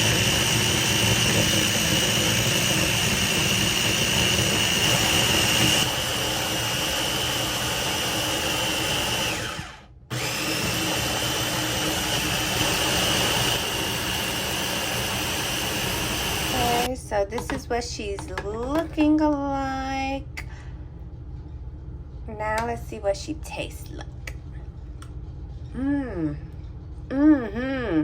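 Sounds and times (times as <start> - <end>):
blender running: 0.0 - 16.9.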